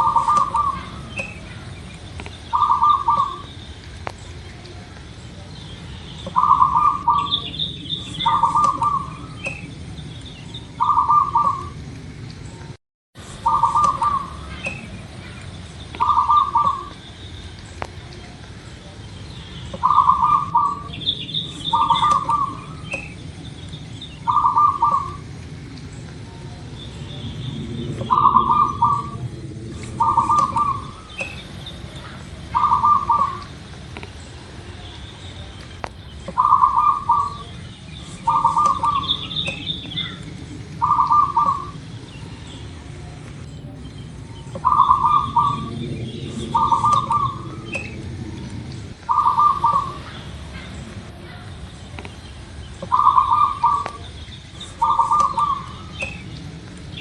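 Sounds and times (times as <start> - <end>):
dove cooing: 0.0 - 3.6, 6.2 - 9.9, 10.6 - 11.8, 13.3 - 17.0, 19.7 - 23.6, 24.2 - 25.3, 26.4 - 33.6, 36.3 - 52.0, 52.8 - 56.4
small bird chirping: 0.0 - 11.8, 12.4 - 57.0
low steady rumble: 0.0 - 57.0.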